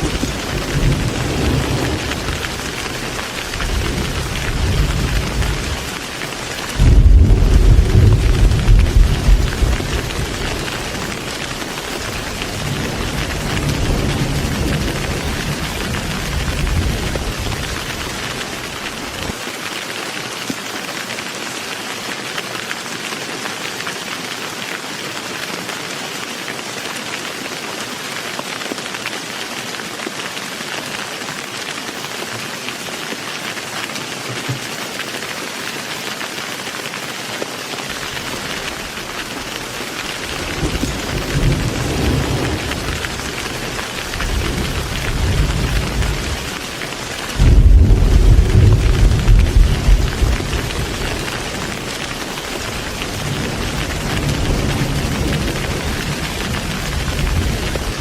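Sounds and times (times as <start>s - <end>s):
thunder rumbling: 0.0s - 19.4s, 38.0s - 58.0s
heavy rain falling: 0.0s - 58.0s.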